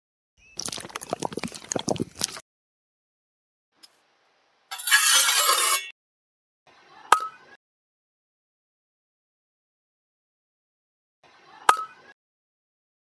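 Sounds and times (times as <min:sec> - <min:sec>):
loud rasping scrape: 0:04.7 - 0:05.9
trowel scraping wet mortar: 0:04.7 - 0:05.9.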